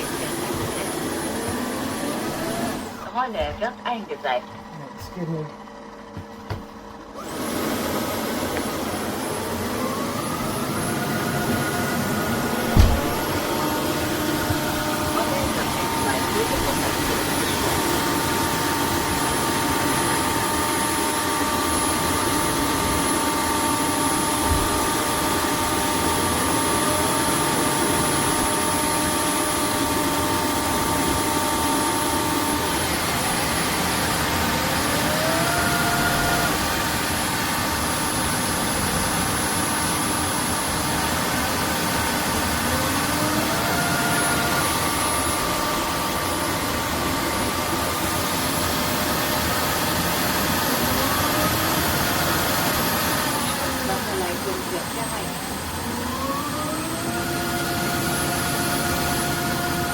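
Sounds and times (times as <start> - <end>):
vacuum motor whirring: 0.0 - 3.8, 5.5 - 59.9
rising motor whine: 7.1 - 48.3.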